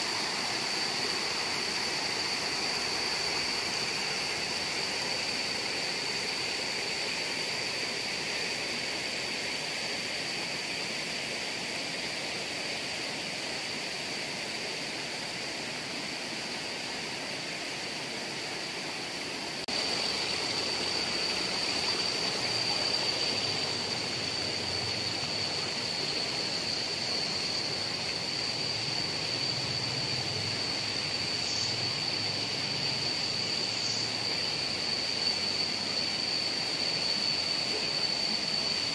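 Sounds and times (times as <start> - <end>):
high-pitched whine: 0.0 - 38.9
water rushing: 16.1 - 38.9.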